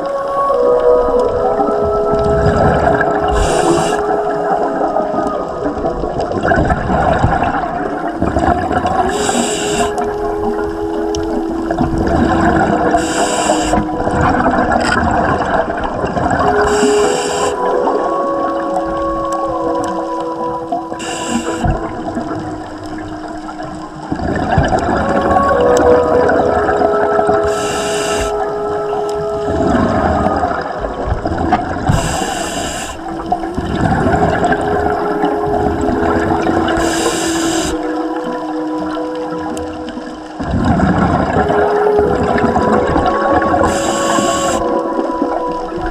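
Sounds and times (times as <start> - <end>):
exhaled bubbles rushing: 0.0 - 45.9
faint steady tones: 0.0 - 45.9
steady hum: 1.2 - 5.5
regulator inhalation hiss: 3.3 - 4.1, 9.1 - 10.0, 12.9 - 13.9, 16.6 - 17.6, 21.0 - 21.7, 27.4 - 28.4, 31.9 - 33.1, 36.8 - 37.8, 43.6 - 44.7.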